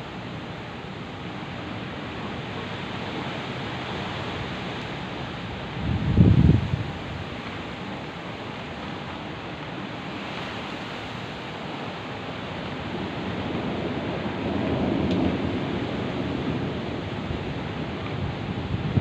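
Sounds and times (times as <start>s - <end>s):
heavy rain: 0.0s - 19.0s
rolling thunder rumble: 1.0s - 7.5s, 12.3s - 19.0s
thunder crack: 13.4s - 19.0s.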